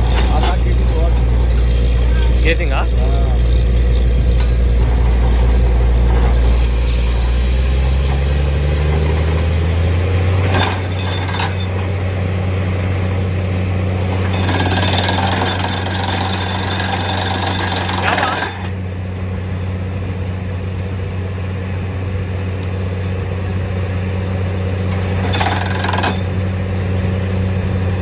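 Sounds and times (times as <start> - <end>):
drilling rig engine drone: 0.0 - 28.0
hissing rattling noise: 4.0 - 9.5.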